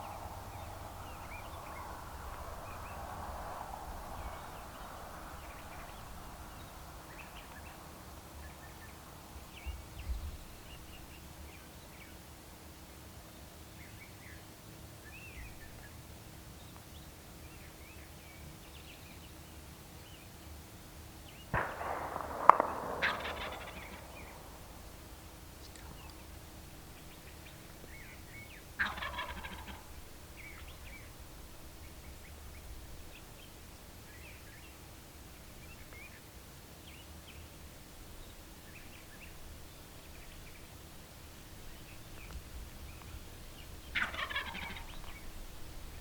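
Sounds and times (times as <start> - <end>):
low outdoor background hiss: 0.0 - 46.0
songbirds chirping faintly: 0.0 - 46.0
shotgun shots with echo: 21.5 - 25.6.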